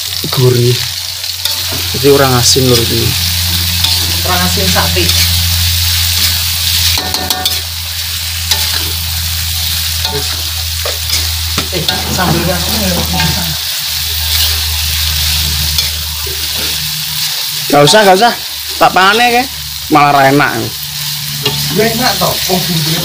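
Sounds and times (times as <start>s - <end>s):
stir-fry sizzling in a pan: 0.0s - 23.0s
low hum: 1.4s - 17.8s.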